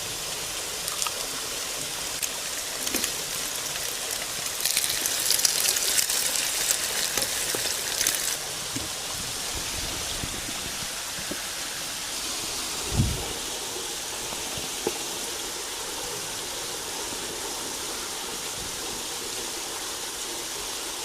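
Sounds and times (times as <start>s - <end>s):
dense crackling sizzle: 0.0s - 8.8s
waterfall rushing: 0.0s - 21.0s.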